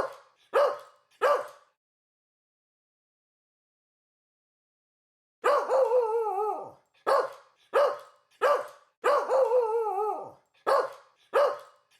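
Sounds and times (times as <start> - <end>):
dog barking: 0.0 - 1.8, 5.4 - 11.8.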